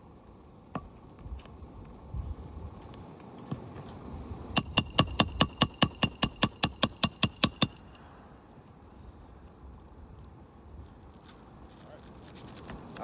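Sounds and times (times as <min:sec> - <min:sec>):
hammer blows on nail: 0:04.6 - 0:08.1.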